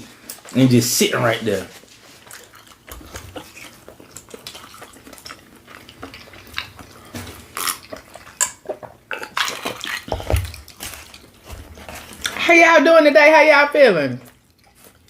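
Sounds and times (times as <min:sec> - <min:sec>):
chewing and mouth smacks: 0:01.7 - 0:12.4, 0:14.2 - 0:15.0.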